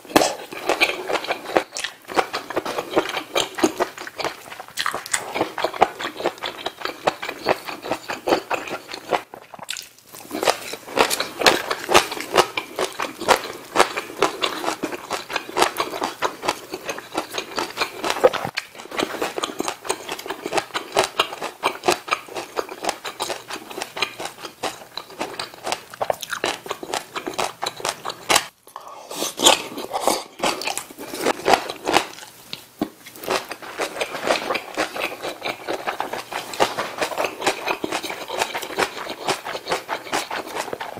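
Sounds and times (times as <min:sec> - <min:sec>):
chewing and biting food: 0:00.1 - 0:40.9
wet mouth sounds with crunches: 0:00.1 - 0:40.9.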